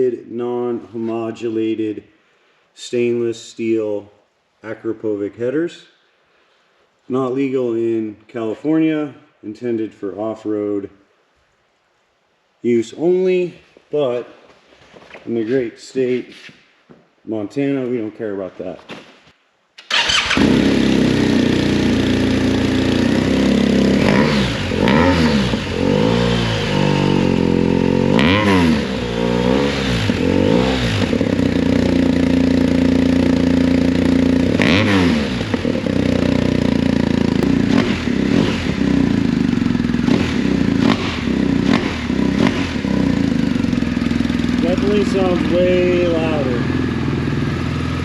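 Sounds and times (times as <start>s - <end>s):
motorcycle engine idling and revving: 19.9s - 48.0s.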